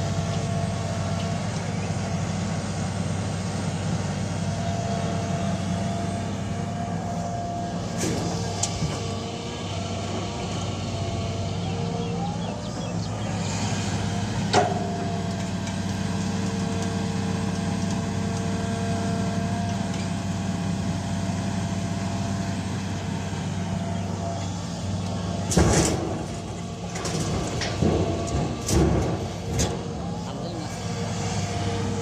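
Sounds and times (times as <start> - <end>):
diesel engine running: 0.0 - 32.0
loud clanks and thumps: 25.4 - 30.4.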